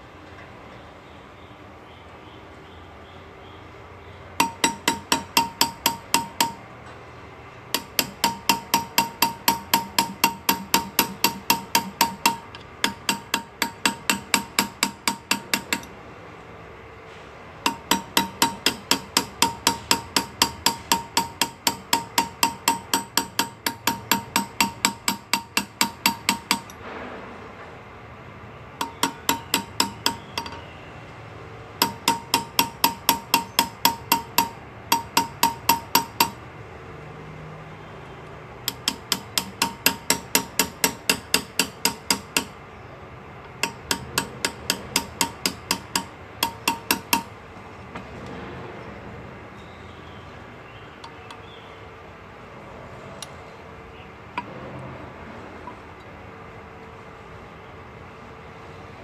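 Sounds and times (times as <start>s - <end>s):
hammer tapping on metal graver: 4.4s - 7.0s, 7.7s - 16.0s, 17.6s - 26.9s, 28.8s - 30.7s, 31.8s - 36.4s, 38.6s - 42.6s, 43.4s - 48.0s.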